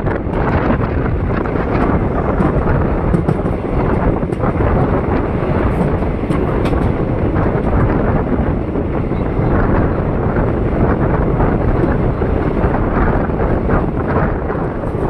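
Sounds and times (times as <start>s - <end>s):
train wheels rumbling on track: 0.0s - 15.0s
wind rushing over microphone: 0.0s - 15.0s
faint rail clicks: 1.3s - 7.9s.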